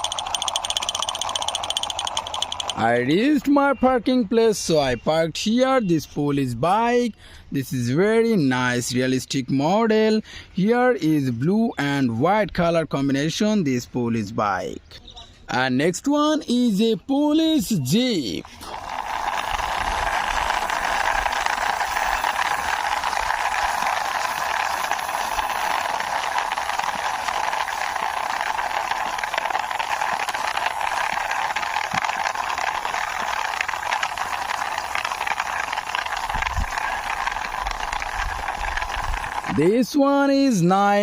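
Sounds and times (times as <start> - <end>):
toy wheels rolling rattling: 0.0 - 3.3, 17.6 - 40.2.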